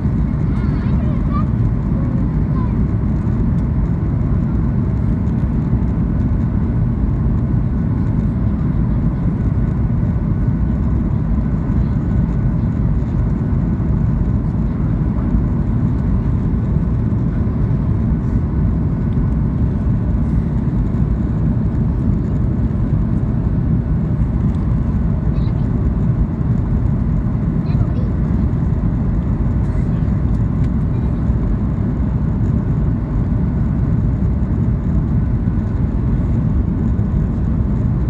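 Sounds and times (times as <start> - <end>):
aircraft cabin engine roar: 0.0 - 38.0.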